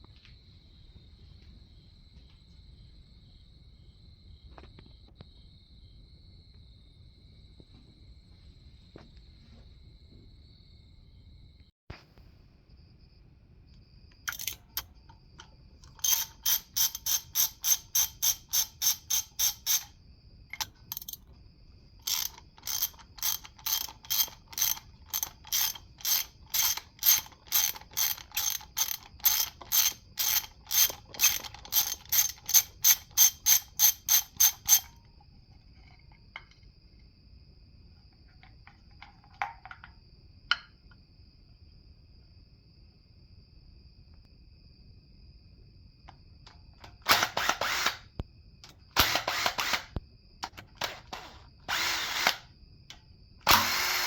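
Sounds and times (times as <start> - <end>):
ratchet wrench clicking: 14.3 - 14.9, 15.8 - 19.9, 20.6 - 21.2, 22.0 - 35.0, 49.0 - 50.0.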